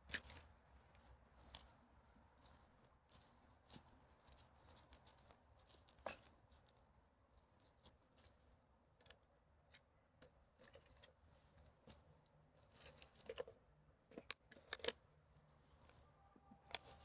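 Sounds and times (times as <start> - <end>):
rustling and crackling of litter: 0.0 - 8.6, 15.5 - 17.0.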